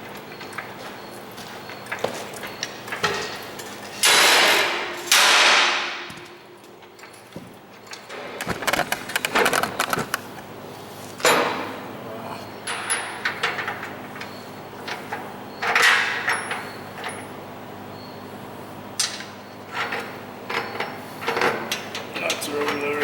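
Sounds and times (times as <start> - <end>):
metal clicks and clatter: 6.0 - 10.4.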